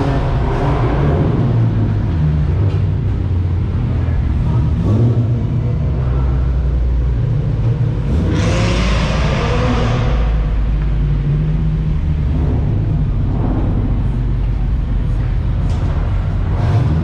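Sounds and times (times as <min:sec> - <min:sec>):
car engine rumbling: 0:00.0 - 0:17.0
loud rushing noise: 0:08.1 - 0:17.0.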